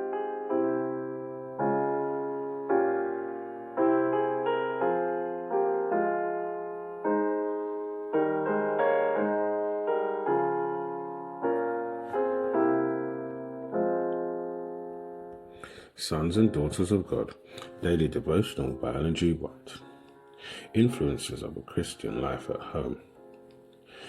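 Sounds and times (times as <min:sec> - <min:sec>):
slow gentle piano chords: 0:00.0 - 0:24.0.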